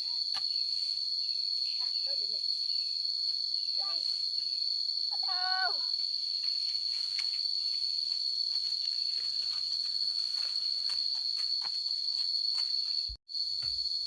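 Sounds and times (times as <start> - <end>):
insects singing high tone: 0.0 - 14.0.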